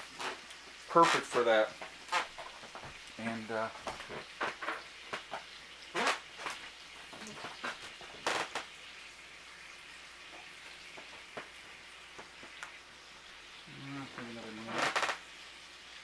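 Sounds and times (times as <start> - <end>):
pancakes sizzling on griddle: 0.0 - 16.0.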